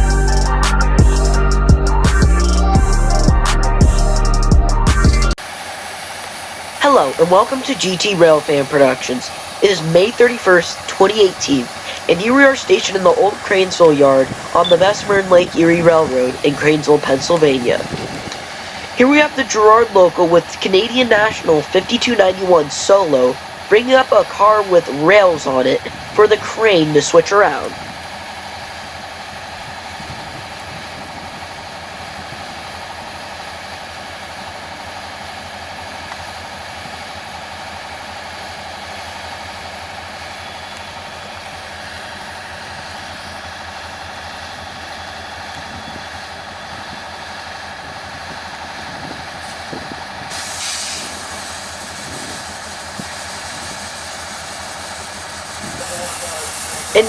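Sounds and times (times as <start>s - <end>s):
diesel locomotive engine running: 0.0s - 57.0s
air brakes hissing: 5.5s - 13.4s, 48.9s - 57.0s.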